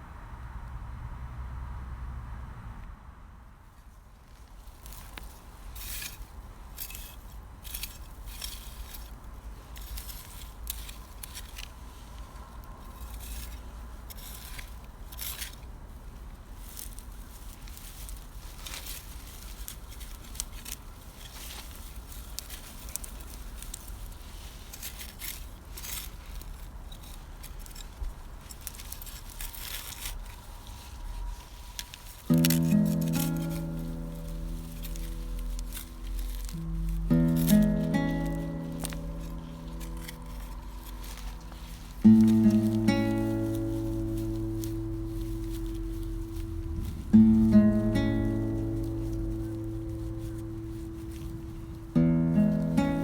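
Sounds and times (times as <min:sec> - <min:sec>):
leaves rustling: 0:03.7 - 0:53.0
carrots pulled from soil: 0:04.2 - 0:53.0
low rumble: 0:33.3 - 0:52.0.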